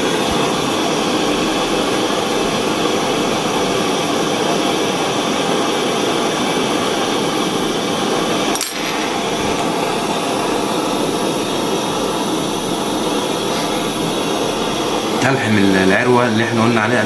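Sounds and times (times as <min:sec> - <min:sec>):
steady rushing noise: 0:00.0 - 0:17.0
sharp click: 0:08.5 - 0:09.2.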